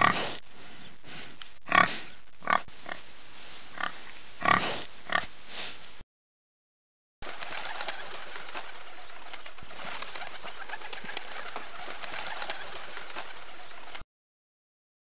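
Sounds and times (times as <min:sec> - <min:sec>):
pigeons rustling and clicking: 0:07.2 - 0:14.0.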